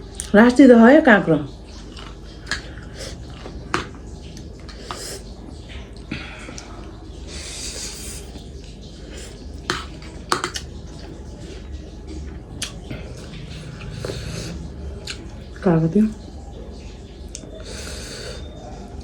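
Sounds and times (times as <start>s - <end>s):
chewing: 1.7s - 7.0s, 7.6s - 16.3s
noisy hissing: 4.6s - 5.3s, 7.2s - 10.6s.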